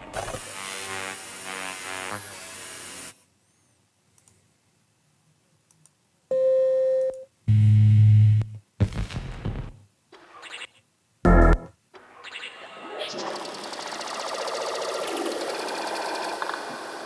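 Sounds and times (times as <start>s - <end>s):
faint clicks: 4.1s - 4.5s, 5.7s - 6.0s
dense electronic sound: 7.5s - 9.9s, 11.3s - 11.7s
loud low buzz: 7.5s - 9.9s, 11.3s - 11.7s
choppy stuttering glitch burst: 8.4s - 9.8s, 11.3s - 11.7s
steady beep: 11.3s - 11.7s.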